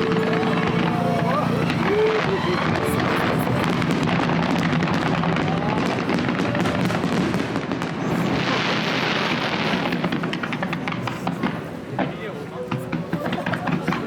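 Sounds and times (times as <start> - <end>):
hissing rush of crackle: 0.0 - 10.6
fireworks bursting with crackling: 0.0 - 14.0.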